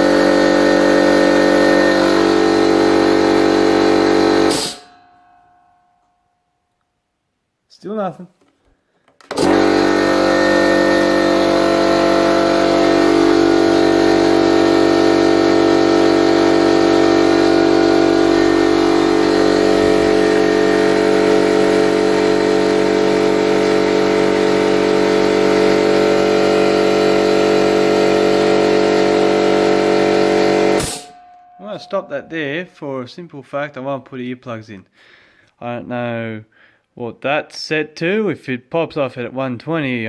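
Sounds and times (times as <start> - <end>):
air compressor humming: 0.0 - 5.2, 9.2 - 32.2.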